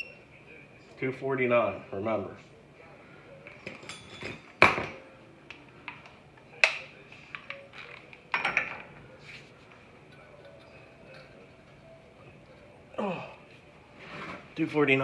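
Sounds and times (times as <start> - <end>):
steel tools clanking on metal hub: 3.5 - 5.0, 5.9 - 9.0.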